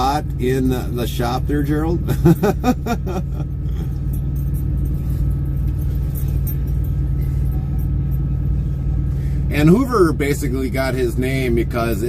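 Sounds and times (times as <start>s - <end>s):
road noise: 0.0s - 12.0s
truck engine rumble: 0.0s - 12.0s.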